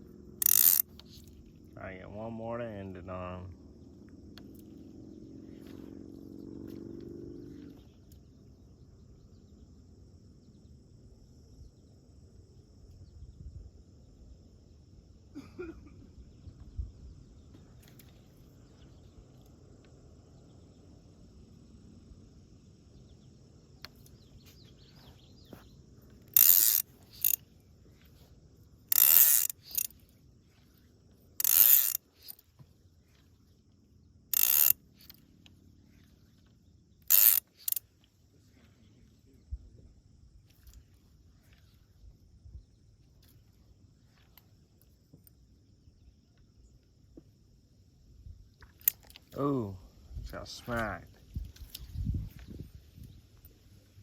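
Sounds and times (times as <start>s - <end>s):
fishing reel drag ratcheting: 0.3s - 1.6s, 26.0s - 33.3s, 34.3s - 38.1s, 48.6s - 49.4s, 51.4s - 52.5s.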